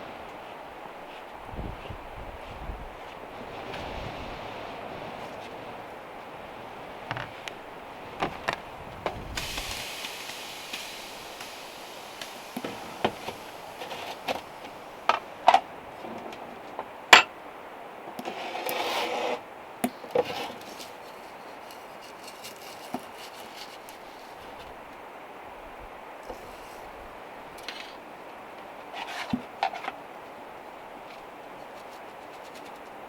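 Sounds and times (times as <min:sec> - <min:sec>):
rubbing or scraping: 0:18.2 - 0:19.4, 0:20.1 - 0:24.7, 0:29.0 - 0:29.8.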